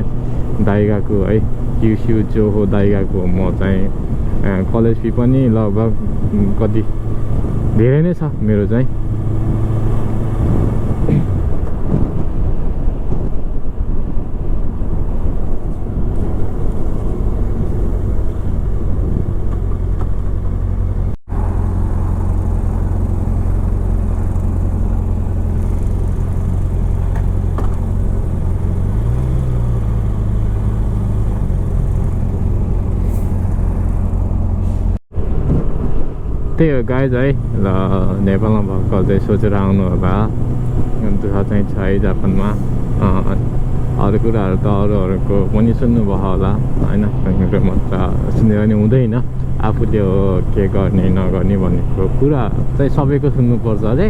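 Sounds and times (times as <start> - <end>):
motorcycle engine and road rumble: 0.0 - 54.0.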